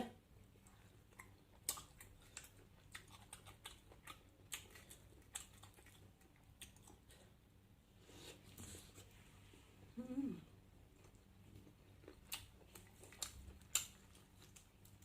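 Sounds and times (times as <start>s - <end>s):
chewing: 0.4s - 7.4s, 10.8s - 15.0s.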